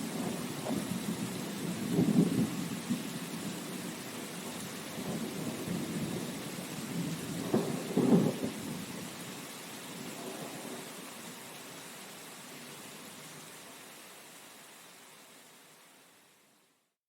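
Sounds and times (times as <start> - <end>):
thunder rumbling: 0.0 - 9.1
rain hiss: 0.0 - 17.0.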